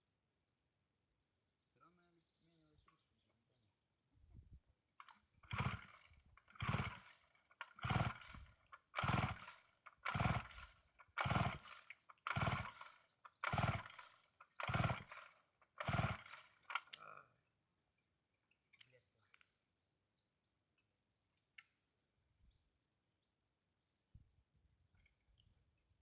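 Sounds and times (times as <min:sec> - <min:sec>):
chainsaw starter cord pulls: 0:05.0 - 0:17.2.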